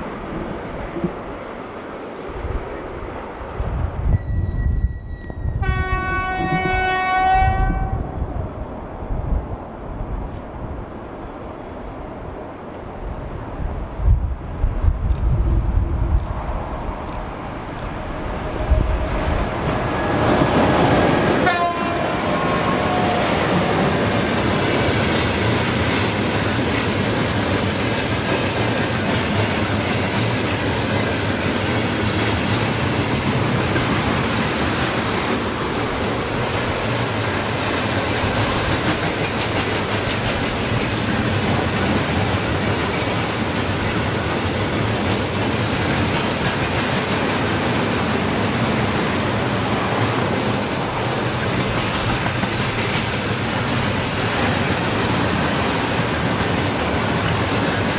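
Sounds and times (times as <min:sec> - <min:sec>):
train wheels clattering over rails: 0:17.1 - 0:57.9.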